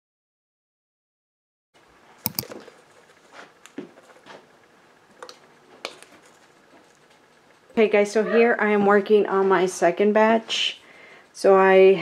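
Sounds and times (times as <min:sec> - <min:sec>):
sharp click: 0:02.2 - 0:02.6.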